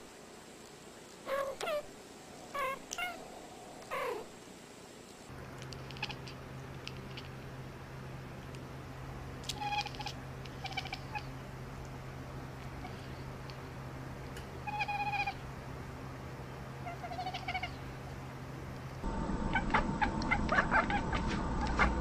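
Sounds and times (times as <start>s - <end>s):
cat meowing: 2.5s - 3.2s, 9.6s - 11.3s, 14.6s - 15.4s, 16.9s - 17.7s.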